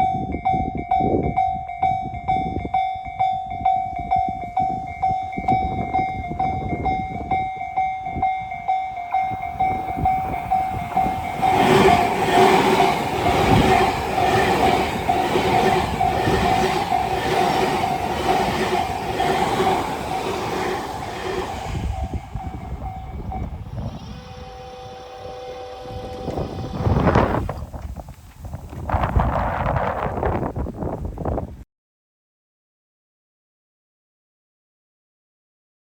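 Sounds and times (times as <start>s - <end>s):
level-crossing bell ringing: 0.0s - 26.6s
train wheels clattering over rail joints: 9.3s - 23.4s.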